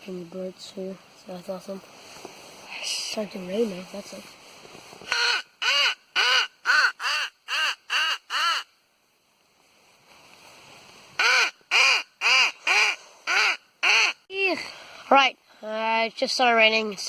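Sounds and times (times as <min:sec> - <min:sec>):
crow call caws: 0:05.1 - 0:08.7, 0:11.2 - 0:14.2.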